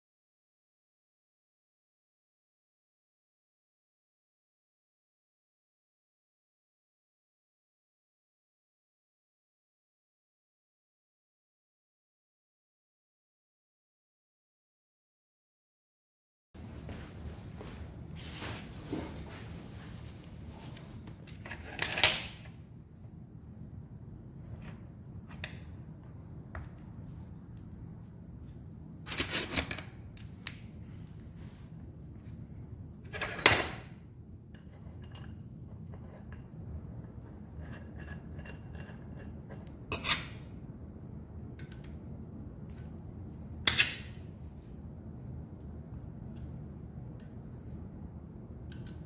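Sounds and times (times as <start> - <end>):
low steady hum: 16.6 - 49.0.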